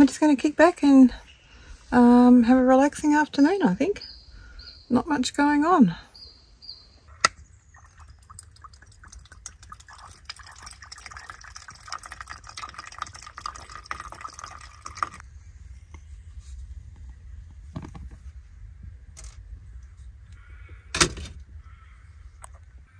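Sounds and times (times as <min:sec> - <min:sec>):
liquid pouring into container: 0:07.7 - 0:15.2.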